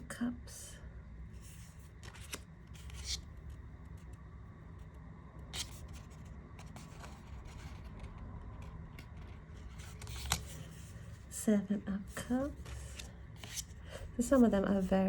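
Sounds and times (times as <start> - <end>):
cards sliding and flicking: 1.6 - 3.3, 9.0 - 10.8, 12.6 - 13.8.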